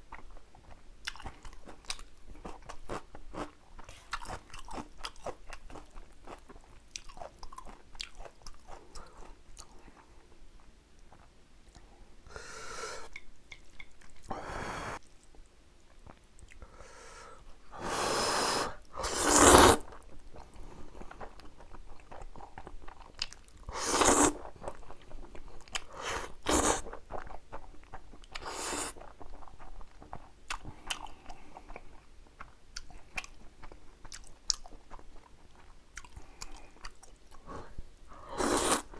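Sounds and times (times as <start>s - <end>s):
wet chewing and crunching: 0.1s - 11.9s, 19.8s - 37.6s
slurping noodles: 17.8s - 20.0s, 23.7s - 24.6s, 26.0s - 27.0s, 28.4s - 29.0s, 38.2s - 38.9s.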